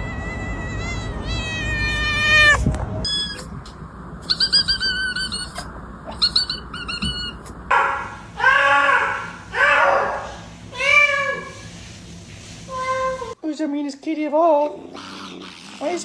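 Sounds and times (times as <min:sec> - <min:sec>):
cat chirping: 0:00.0 - 0:03.5, 0:04.2 - 0:07.6
cat meowing: 0:00.0 - 0:03.5.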